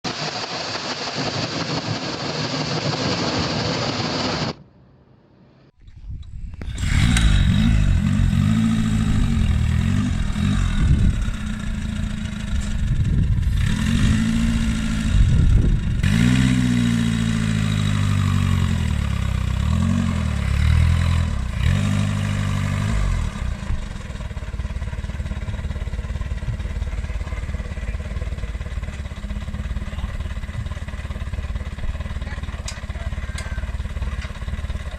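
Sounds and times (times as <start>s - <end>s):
short noisy passage: 0.1s - 8.0s
motorcycle engine revving and idling: 6.0s - 34.9s.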